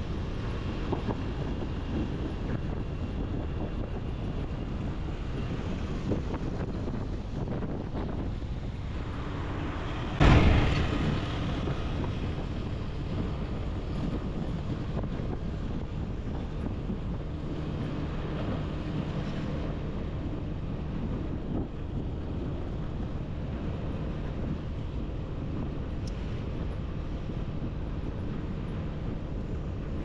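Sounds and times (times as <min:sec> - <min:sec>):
motorbike engine and road noise: 0:00.0 - 0:30.0
wind rushing over microphone: 0:00.0 - 0:30.0
sudden loud burst of noise: 0:10.1 - 0:12.2.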